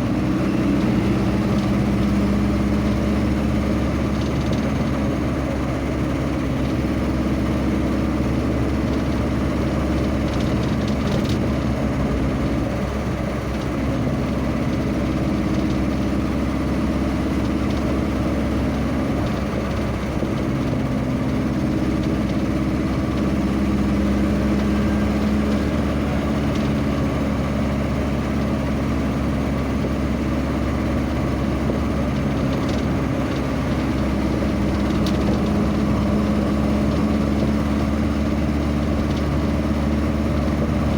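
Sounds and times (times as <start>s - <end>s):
vehicle engine running on road: 0.0s - 40.9s.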